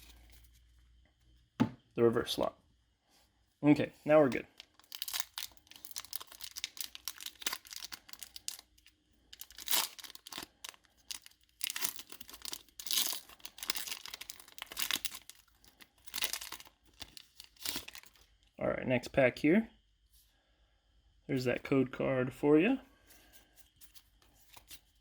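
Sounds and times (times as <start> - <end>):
foil wrapper crinkling and tearing: 4.5 - 18.3.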